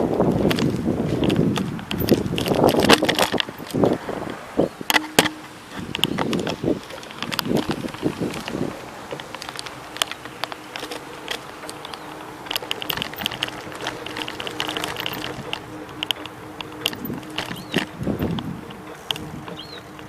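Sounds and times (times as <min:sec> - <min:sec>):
bicycle clicking and rattling: 0:00.0 - 0:20.0
low hum: 0:04.8 - 0:20.0.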